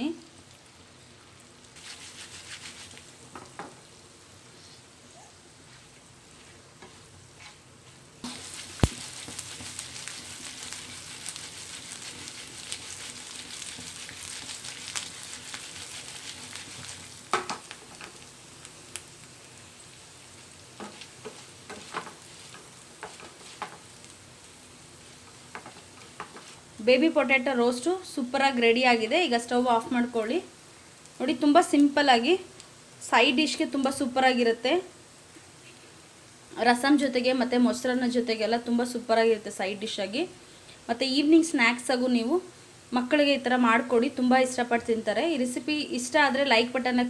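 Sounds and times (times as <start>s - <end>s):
potatoes sizzling in oil: 0.0s - 47.0s
wooden spatula stirring: 1.8s - 3.0s, 8.2s - 18.2s, 20.4s - 26.7s.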